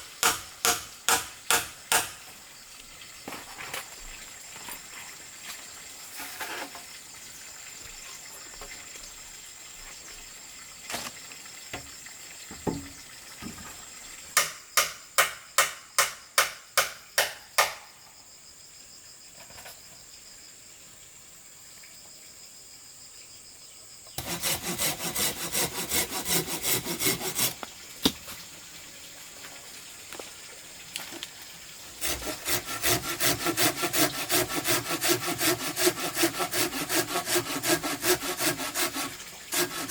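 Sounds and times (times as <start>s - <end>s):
hand saw cutting wood: 0.0s - 2.2s, 24.2s - 28.2s, 31.9s - 39.9s.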